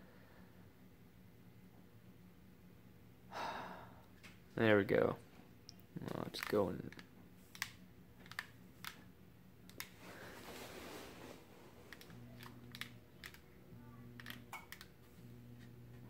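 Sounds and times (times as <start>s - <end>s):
ceiling fan motor hum: 0.0s - 16.0s
sharp clicks: 5.7s - 10.0s, 11.9s - 13.5s.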